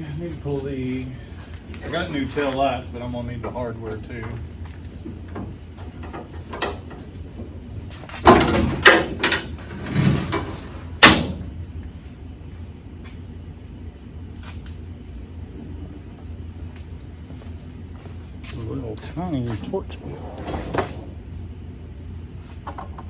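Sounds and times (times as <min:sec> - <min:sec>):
steady low hum: 0:00.0 - 0:23.0
clanks of hand tools and parts: 0:08.2 - 0:11.4.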